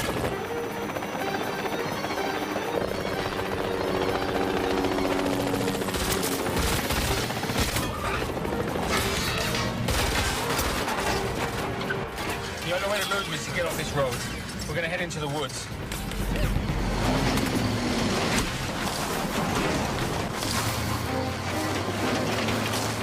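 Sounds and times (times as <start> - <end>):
film score music: 0.0 - 23.0
rapid gunfire: 5.5 - 11.4.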